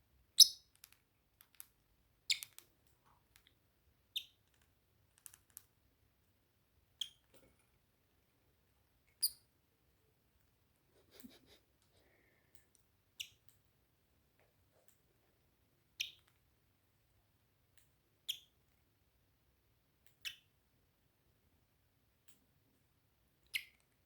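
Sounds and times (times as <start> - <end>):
faint small clicks: 0.6 - 3.6, 4.2 - 5.8, 22.2 - 22.5.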